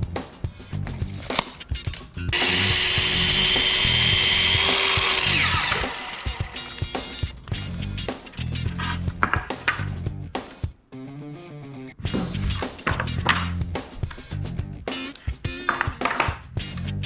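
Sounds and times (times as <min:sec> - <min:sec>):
music with steady beat: 0:00.0 - 0:10.8, 0:12.1 - 0:17.0
electric power tool running: 0:02.4 - 0:06.9.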